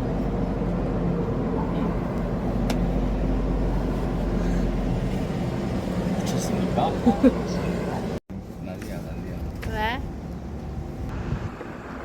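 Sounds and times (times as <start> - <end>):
low engine drone: 0.0 - 8.6.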